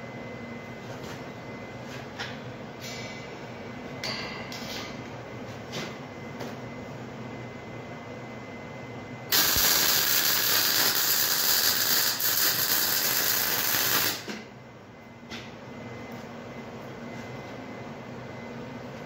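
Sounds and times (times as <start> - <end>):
welding arc crackling: 9.3 - 14.3.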